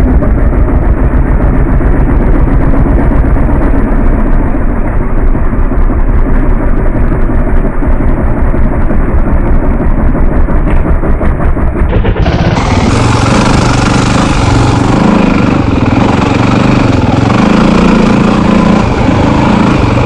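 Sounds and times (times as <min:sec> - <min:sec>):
dirt bike engine revving: 0:11.9 - 0:20.0.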